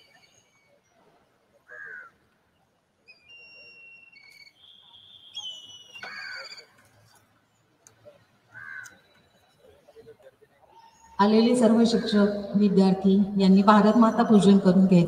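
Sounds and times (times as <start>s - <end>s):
birds whistling: 0.0s - 1.0s, 3.1s - 6.8s
harsh bird call: 1.7s - 2.2s, 3.1s - 6.8s.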